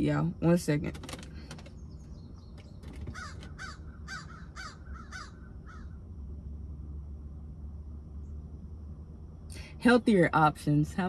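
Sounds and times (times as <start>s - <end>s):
bird cawing harshly: 3.0s - 6.0s.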